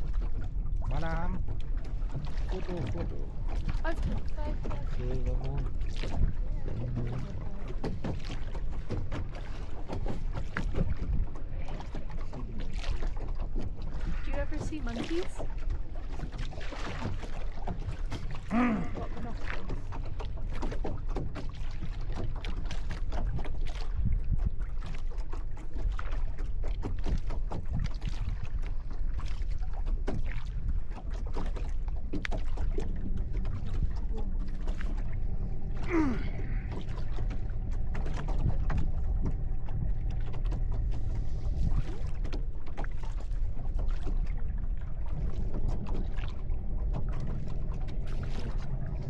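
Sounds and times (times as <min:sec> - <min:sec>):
boat engine rumble: 0:00.0 - 0:49.0
water knocks and splashes: 0:00.0 - 0:49.0
faint steady drone: 0:32.0 - 0:49.0.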